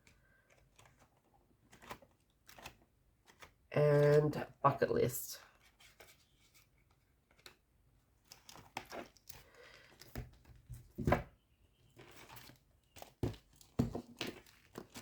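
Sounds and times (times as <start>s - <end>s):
paper and plastic rustling: 0.0s - 4.2s, 11.9s - 15.0s.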